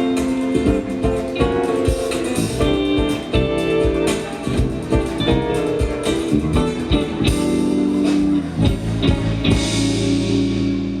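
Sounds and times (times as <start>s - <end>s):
band music with guitars and drums: 0.0s - 11.0s.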